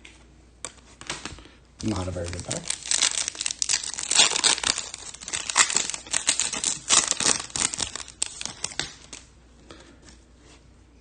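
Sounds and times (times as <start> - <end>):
foil wrapper crinkling and tearing: 1.8 - 9.3.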